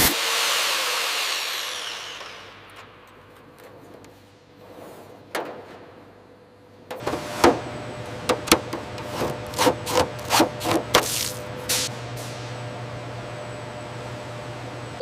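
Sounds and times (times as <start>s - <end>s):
abrasive tool scraping: 9.0s - 11.4s.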